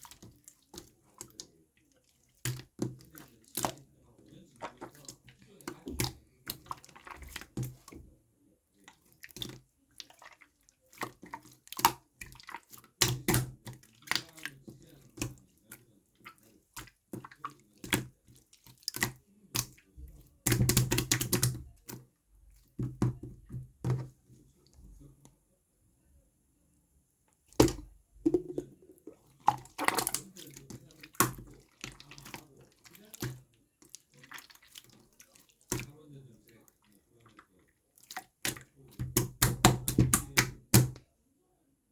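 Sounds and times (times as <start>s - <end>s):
slime squelching: 0.0s - 25.2s, 27.4s - 41.0s
slime squished by hand: 27.6s - 35.9s.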